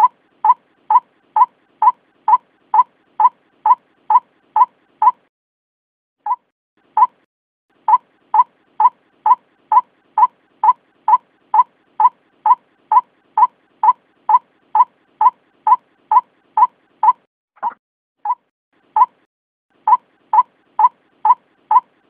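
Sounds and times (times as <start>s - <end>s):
bird calls: 0.0s - 5.2s, 6.3s - 7.2s, 7.8s - 19.2s, 19.9s - 22.0s.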